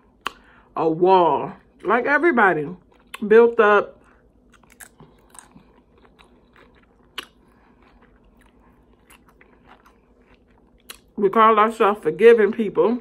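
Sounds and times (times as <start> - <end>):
chewing crisp chip: 2.8 - 3.3, 4.0 - 11.2.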